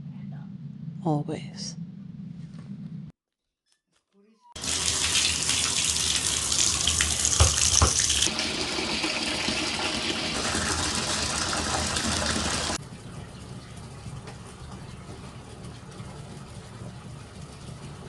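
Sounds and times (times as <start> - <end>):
water running from tap: 4.6 - 12.8.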